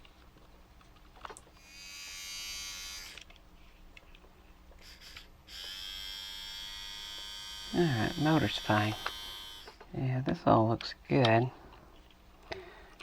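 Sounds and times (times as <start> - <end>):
small electric motor whining: 1.6 - 3.3, 4.8 - 9.8.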